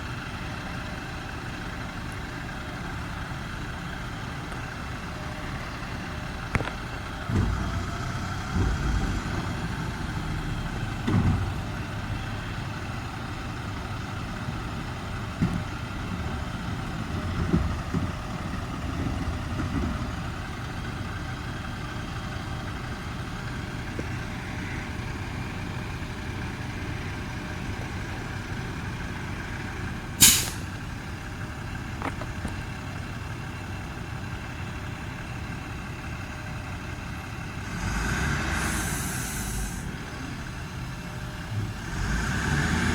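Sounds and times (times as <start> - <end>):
garbage truck engine running: 0.0 - 42.9
heavy thumps and clunks: 8.4 - 9.4, 11.0 - 11.6, 17.2 - 18.4
short sharp burst: 30.2 - 30.7.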